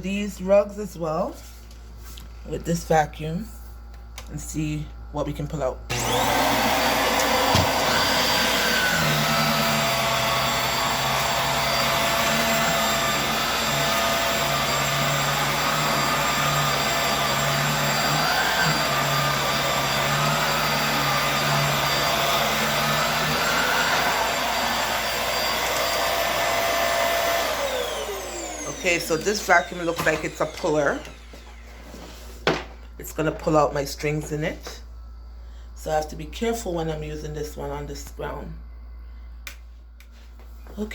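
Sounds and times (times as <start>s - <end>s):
vacuum cleaner running: 5.9s - 32.4s.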